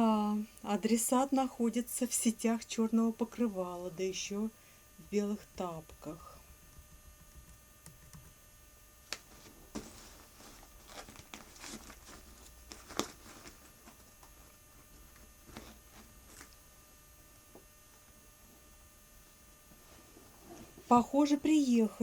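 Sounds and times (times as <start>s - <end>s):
steady low hum: 0.0s - 22.0s
soft rustling: 9.2s - 16.6s.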